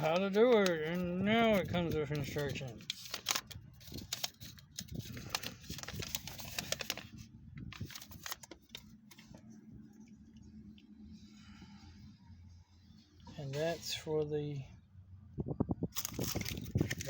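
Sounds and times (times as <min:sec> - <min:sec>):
packaging rustling: 0:00.0 - 0:09.4, 0:16.0 - 0:17.0
low steady hum: 0:00.0 - 0:17.0.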